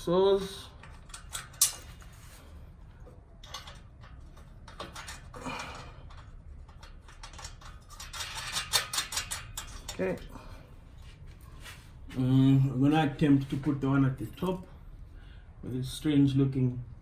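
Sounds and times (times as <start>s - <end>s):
metallic clicks of bolts and tools: 0.8s - 2.4s, 3.4s - 10.2s.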